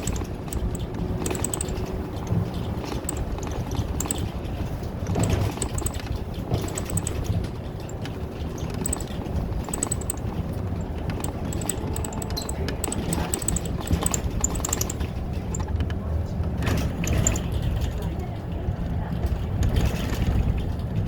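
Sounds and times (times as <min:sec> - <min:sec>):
interior fittings rattling: 0:00.0 - 0:15.7, 0:17.0 - 0:18.0
bus engine and road rumble: 0:00.0 - 0:21.0.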